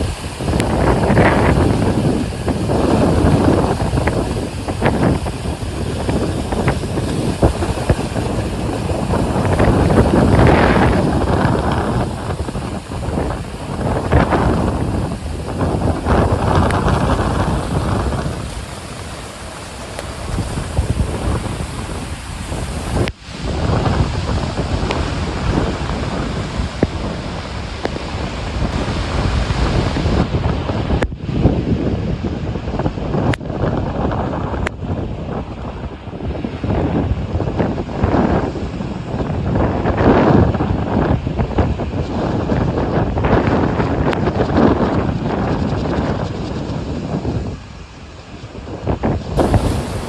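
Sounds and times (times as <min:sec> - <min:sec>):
heavy surf: 0:00.0 - 0:50.0
sea waves breaking: 0:00.0 - 0:50.0
strong wind buffeting microphone: 0:00.0 - 0:50.0.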